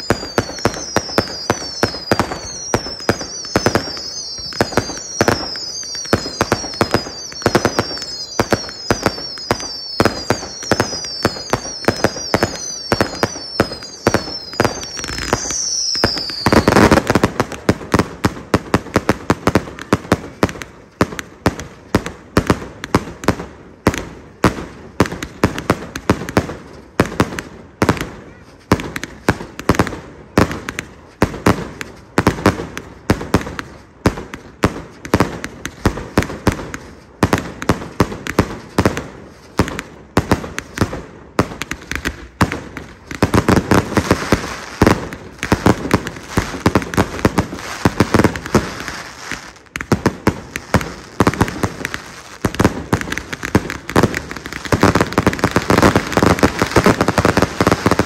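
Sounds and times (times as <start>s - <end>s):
firework whistles falling in pitch: 0.0s - 18.0s, 41.7s - 58.0s
fireworks bangs: 0.0s - 58.0s.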